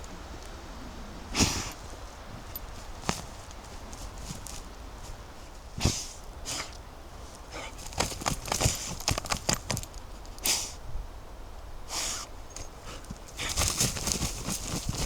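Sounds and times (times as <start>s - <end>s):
twigs snapping: 1.4s - 5.3s, 7.4s - 10.4s, 12.6s - 15.0s
brief rustles: 1.4s - 10.7s, 12.0s - 15.0s
footsteps crunching leaf litter: 1.8s - 5.6s.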